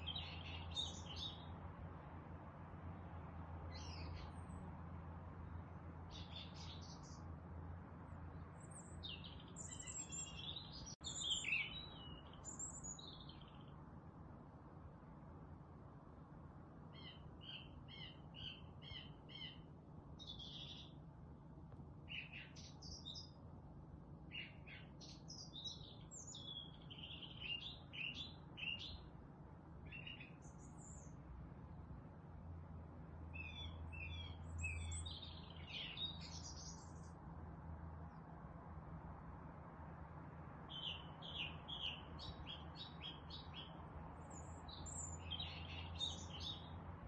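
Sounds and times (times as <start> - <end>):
songbirds chirping and singing: 0.0 - 1.6, 3.7 - 4.6, 6.1 - 7.2, 8.2 - 13.8, 17.0 - 21.0, 22.1 - 23.4, 24.3 - 29.1, 29.9 - 31.2, 33.2 - 37.1, 40.7 - 46.9.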